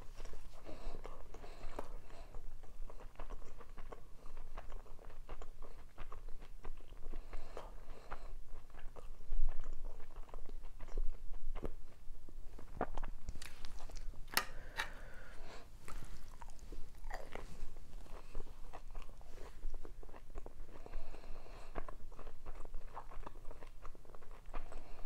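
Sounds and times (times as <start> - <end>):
wet crunchy chewing: 0.0 - 25.0.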